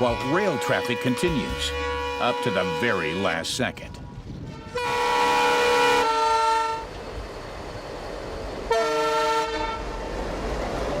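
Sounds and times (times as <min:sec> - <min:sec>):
train horn blasts: 0:00.0 - 0:03.5, 0:04.4 - 0:06.9, 0:08.7 - 0:10.0
low rumble of running train: 0:00.0 - 0:11.0.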